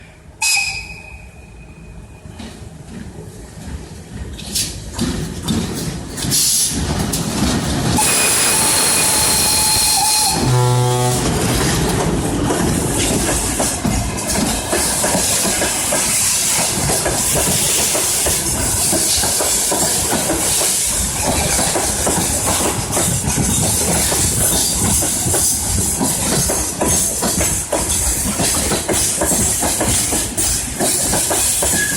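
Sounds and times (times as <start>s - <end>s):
electric locomotive passing: 0.0s - 31.9s
train horn blast: 8.0s - 13.5s
freight wagons rumbling and clattering: 10.6s - 17.6s.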